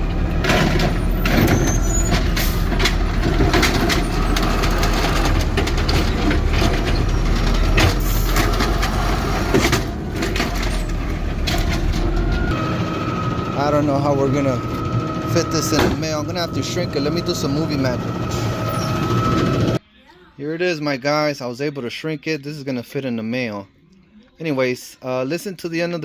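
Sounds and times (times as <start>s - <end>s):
garbage truck running: 0.0s - 19.8s.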